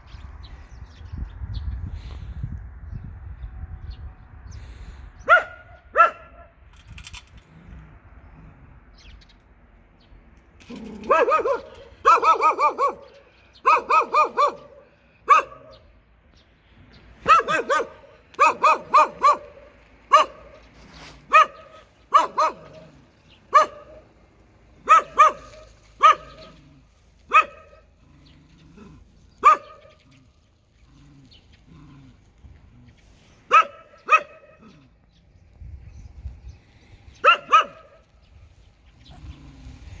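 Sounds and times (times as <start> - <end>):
dog barking fiercely: 5.2 - 6.5, 10.8 - 15.8, 17.2 - 24.2, 24.8 - 30.2, 33.4 - 34.9, 37.2 - 38.1.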